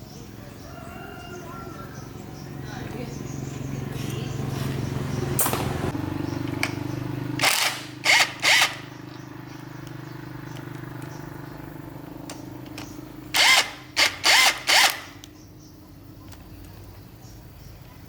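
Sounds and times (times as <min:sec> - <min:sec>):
machine humming: 0:05.1 - 0:15.6.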